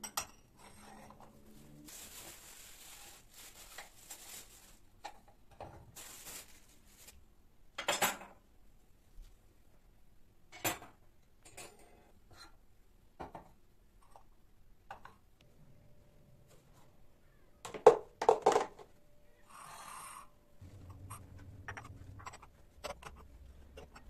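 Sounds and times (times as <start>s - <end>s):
soft rustle: 0.8s - 5.0s, 5.9s - 7.2s
knocks and clinks of hard objects: 17.7s - 18.9s.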